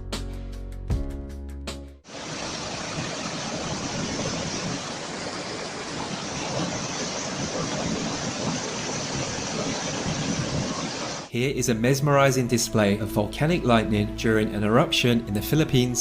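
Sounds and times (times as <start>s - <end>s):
steady rushing noise: 2.1s - 11.3s.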